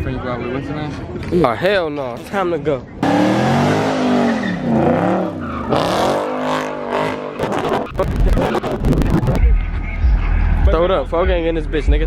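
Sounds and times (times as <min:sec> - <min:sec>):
car engine revving: 0:03.0 - 0:10.9
tires squealing: 0:03.0 - 0:11.1
low rumble with crackles: 0:07.4 - 0:10.8.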